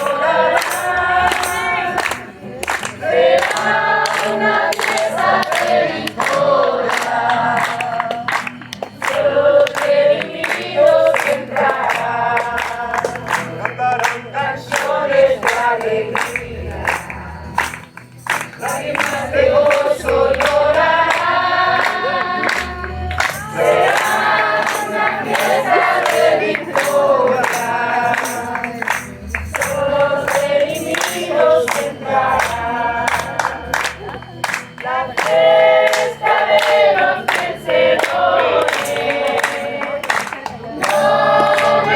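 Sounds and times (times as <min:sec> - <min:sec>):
group singing worship song: 0:00.0 - 0:41.9.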